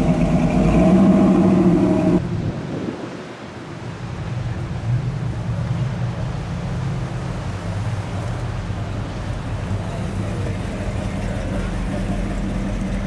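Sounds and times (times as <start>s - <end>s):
car engine low exhaust note: 0.0s - 2.2s, 9.7s - 13.0s.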